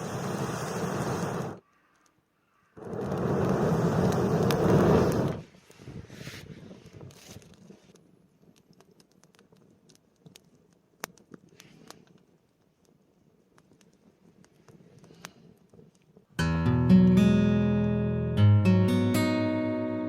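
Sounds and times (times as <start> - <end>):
faint small ticks and crackles: 1.2 - 16.4.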